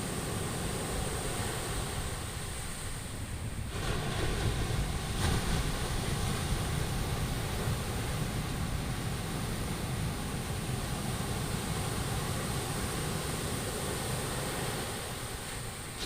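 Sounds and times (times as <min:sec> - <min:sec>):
ocean surf washing onto beach: 0:00.0 - 0:16.0
wind rumbling on microphone: 0:00.0 - 0:16.0.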